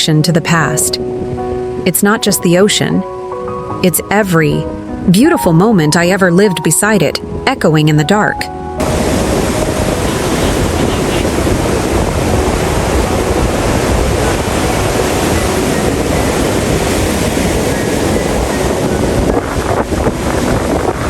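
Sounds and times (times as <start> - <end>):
ocean surf breaking on beach: 8.8 - 21.0.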